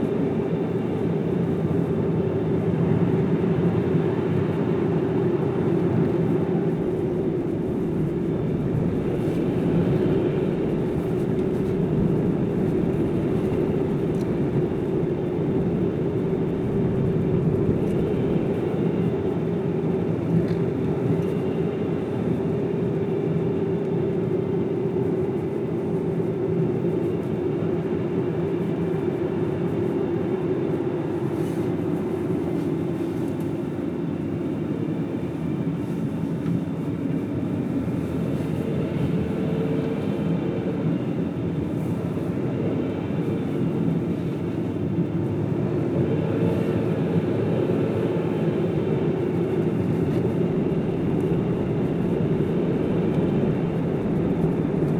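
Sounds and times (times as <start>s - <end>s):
tyre road noise: 3.8s - 21.6s, 37.8s - 54.9s
car engine: 5.4s - 19.5s, 45.4s - 54.9s.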